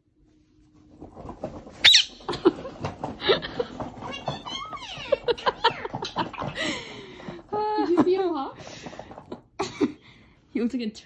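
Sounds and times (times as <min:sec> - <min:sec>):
people laughing: 0:04.9 - 0:08.3.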